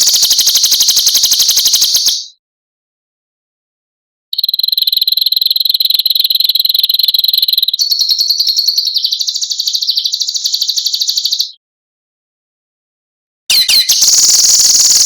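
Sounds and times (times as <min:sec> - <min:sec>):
songbird buzzing trill: 0:00.0 - 0:02.3, 0:13.5 - 0:15.0.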